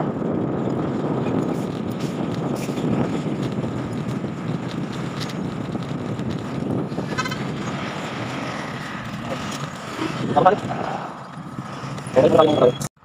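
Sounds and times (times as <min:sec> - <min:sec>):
wind buffeting microphone: 0:00.0 - 0:12.9
vehicle and road noise: 0:00.0 - 0:13.0.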